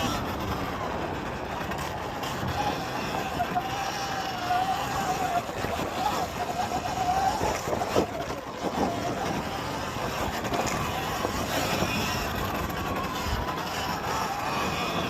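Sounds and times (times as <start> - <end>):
electric motorbike motor whine: 0.0 - 15.0
wind and tyre noise: 0.0 - 15.0.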